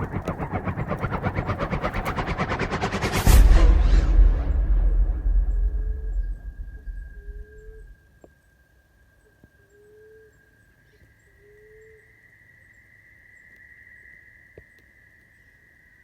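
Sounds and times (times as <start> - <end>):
high-pitched drone: 0.0 - 7.9.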